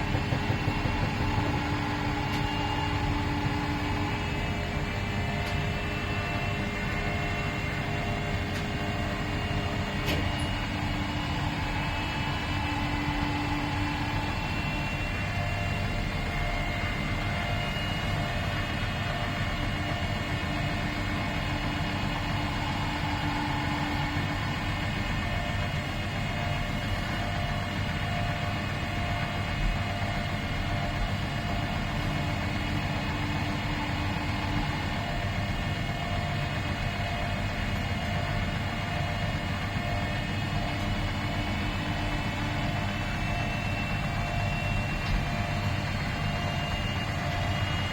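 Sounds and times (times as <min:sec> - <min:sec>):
high-pitched whine: 0:00.0 - 0:19.4
washing machine running: 0:00.0 - 0:47.9.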